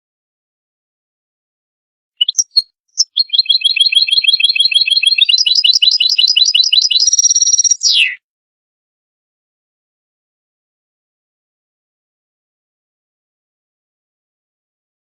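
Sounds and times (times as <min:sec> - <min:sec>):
finch song trill: 0:02.2 - 0:08.2.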